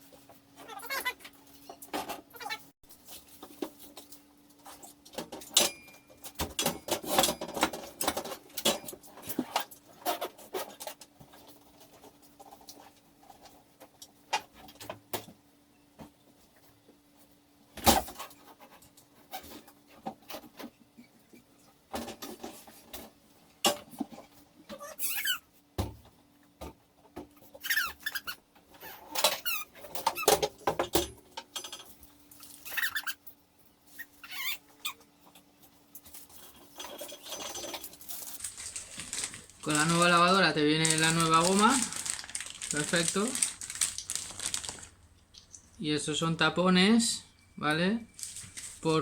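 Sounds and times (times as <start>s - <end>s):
faint steady hum: 28.5s - 49.0s.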